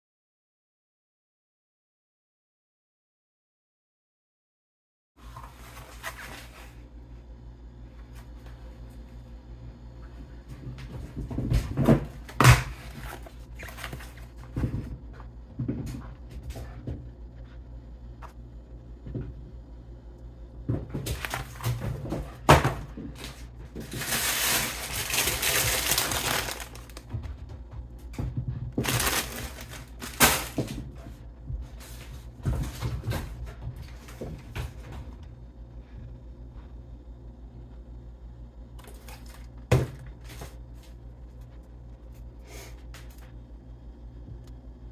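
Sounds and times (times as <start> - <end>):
clatter of things being handled: 20.7 - 31.2.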